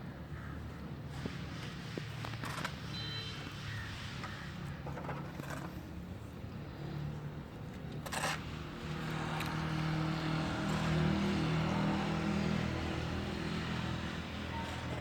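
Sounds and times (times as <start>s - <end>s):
engine running with low hum: 3.6s - 15.0s.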